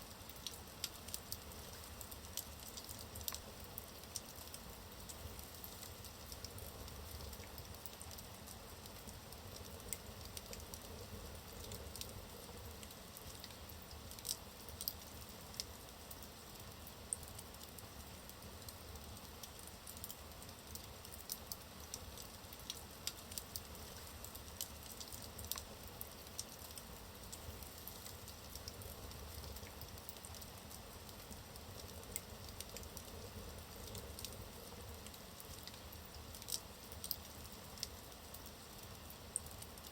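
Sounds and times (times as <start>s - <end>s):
logs crackling in a fireplace: 0.0s - 39.9s
fire popping and snapping: 18.6s - 38.4s.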